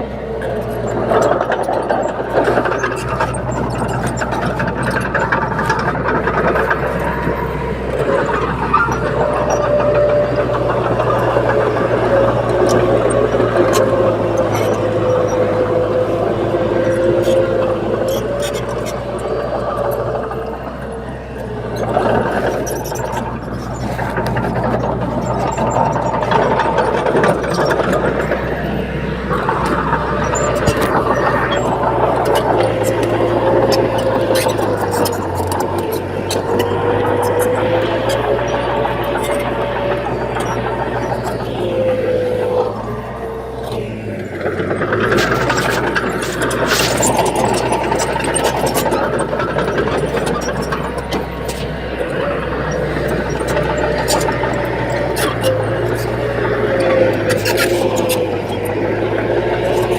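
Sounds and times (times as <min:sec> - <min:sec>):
bulldozer diesel engine running: 0:00.0 - 0:59.9
rattles and clanks: 0:00.0 - 0:59.9
steady whine: 0:00.0 - 0:59.9.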